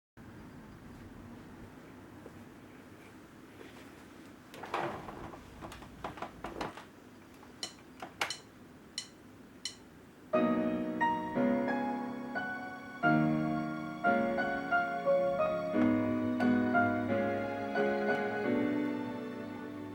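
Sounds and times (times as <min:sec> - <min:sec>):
electronic keyboard piano chords: 0:09.0 - 0:19.9.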